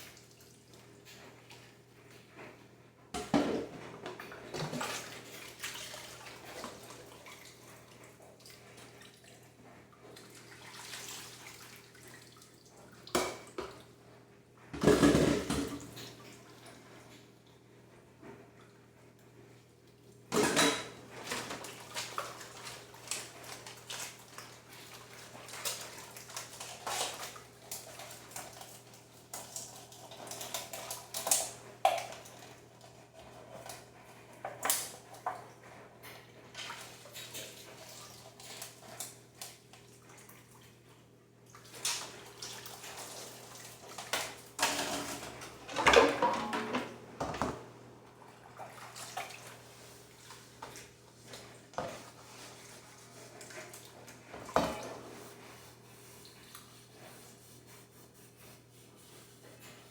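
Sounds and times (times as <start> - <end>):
dishes and cutlery clattering: 14.8 - 16.2, 20.3 - 21.7, 44.0 - 47.6.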